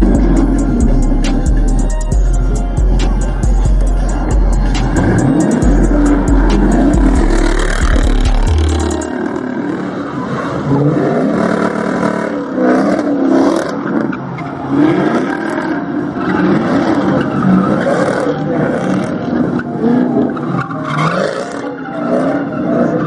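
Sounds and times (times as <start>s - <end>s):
heavy music bass line: 0.0s - 9.6s
car engines revving: 0.0s - 23.0s.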